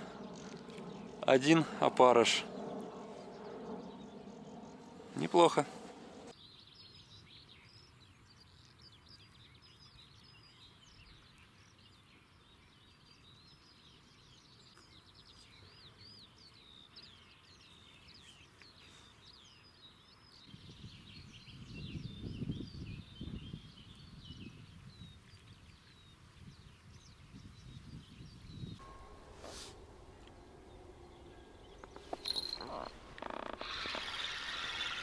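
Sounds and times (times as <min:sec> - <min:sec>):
low rumbling noise: 0:00.0 - 0:06.3, 0:28.8 - 0:35.0
small birds chirping: 0:00.0 - 0:35.0.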